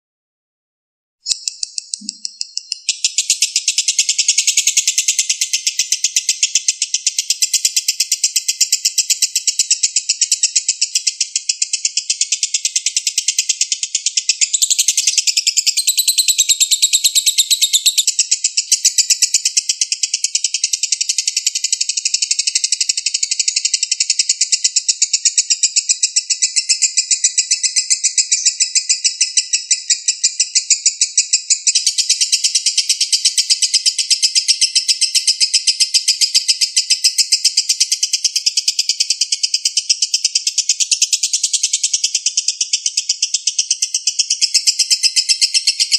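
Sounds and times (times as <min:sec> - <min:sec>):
songbird chattering song: 0:01.2 - 0:45.9.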